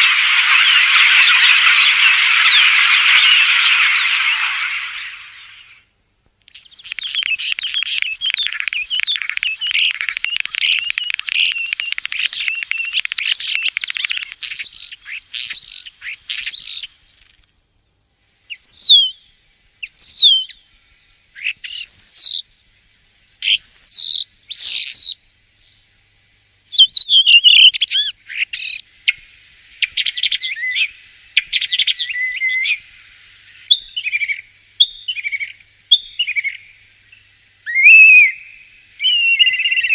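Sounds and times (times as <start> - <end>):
starling singing: 6.5 - 17.0.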